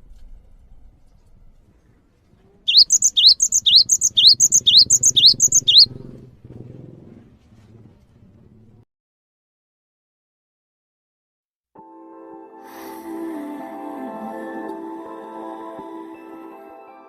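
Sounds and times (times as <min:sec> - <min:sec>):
bird call short rising notes: 0:02.7 - 0:05.9.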